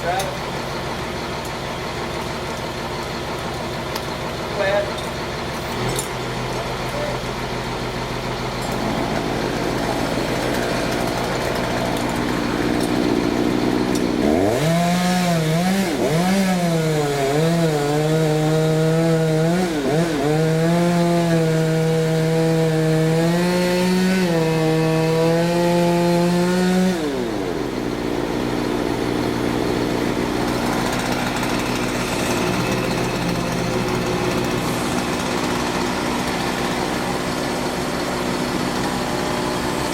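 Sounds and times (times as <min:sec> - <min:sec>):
engine idling: 0:00.0 - 0:17.7, 0:27.1 - 0:39.9
chainsaw revving: 0:00.0 - 0:39.9.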